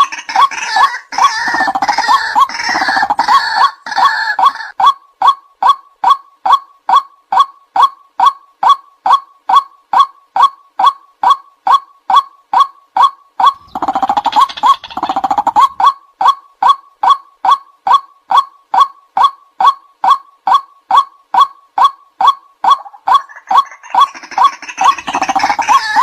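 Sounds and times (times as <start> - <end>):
waterhen calling: 0.0 - 4.8, 13.4 - 16.4, 21.4 - 26.0.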